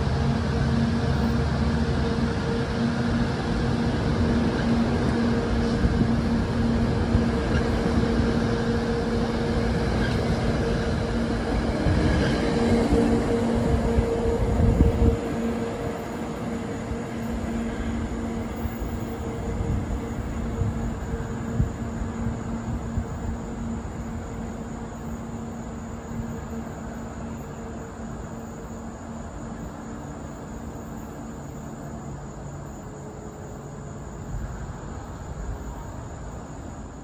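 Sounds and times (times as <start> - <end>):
diesel train engine drone: 0.0 - 37.0
train rumble and rail noise: 0.0 - 37.0.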